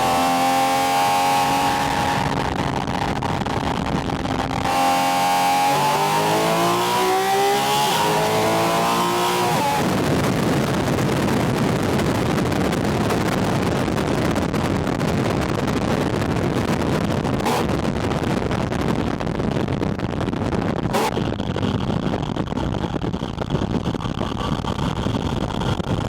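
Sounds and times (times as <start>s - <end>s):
car engine pulling: 0.0s - 10.0s
rushing wind and intake air: 0.0s - 26.0s.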